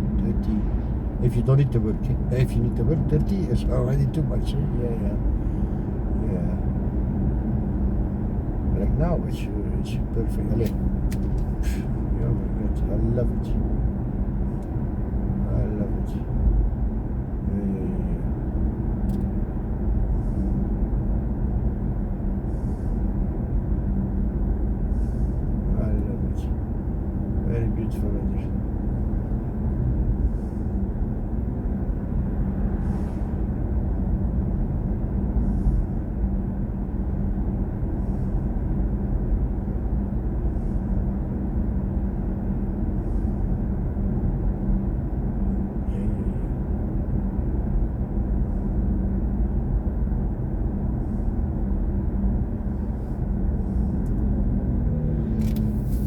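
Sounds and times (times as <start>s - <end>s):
tyre and road noise in car: 46.6s - 56.0s.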